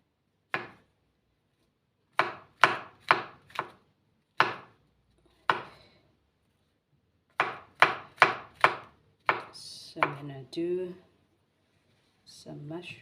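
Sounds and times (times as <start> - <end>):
knife chopping on cutting board: 0.5 - 0.8, 2.2 - 3.8, 4.4 - 4.8, 5.4 - 5.8, 7.4 - 10.2.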